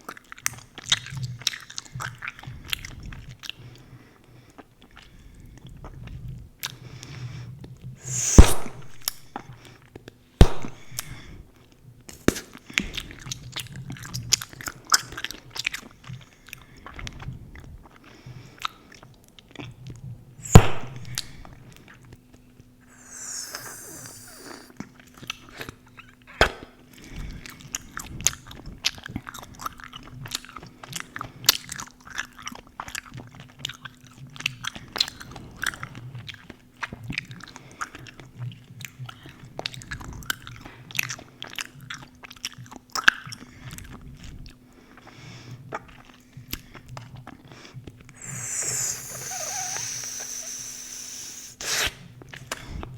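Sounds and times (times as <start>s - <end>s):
faint steady hum: 20.2s - 24.7s, 46.2s - 51.6s
gum bubbles popping: 20.5s - 21.6s, 22.9s - 24.7s, 48.2s - 51.8s
gum chewing: 22.9s - 24.7s, 48.2s - 51.9s.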